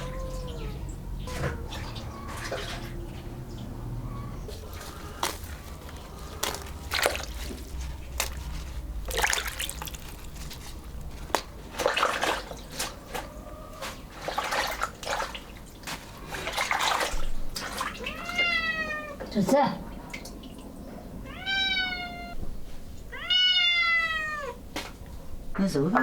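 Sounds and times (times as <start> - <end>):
cat meowing: 0.0 - 2.3, 17.9 - 19.3, 21.2 - 22.4, 23.1 - 24.6
water splashing and sloshing: 0.0 - 22.3.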